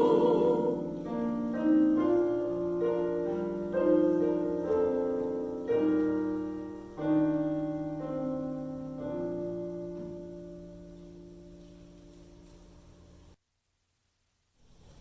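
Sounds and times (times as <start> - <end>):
piano playing slow chords: 0.0 - 13.4.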